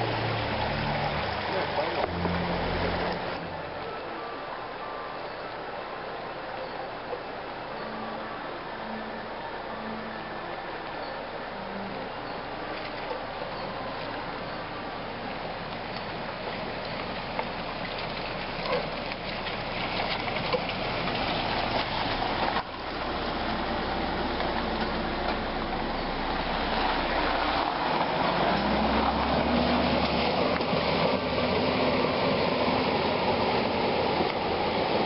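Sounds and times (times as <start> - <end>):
vehicle engine running: 11.5 - 35.0
steady rushing noise: 19.2 - 35.0.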